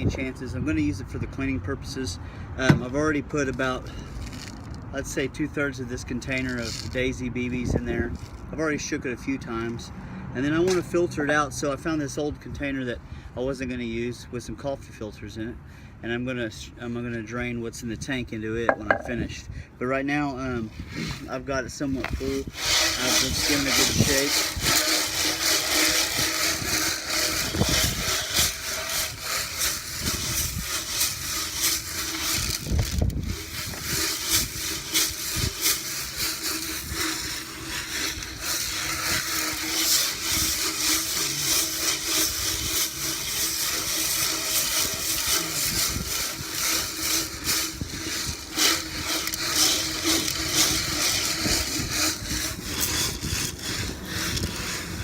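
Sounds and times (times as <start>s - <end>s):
metal balls rattling in a tank: 18.7s - 19.1s, 22.0s - 55.0s.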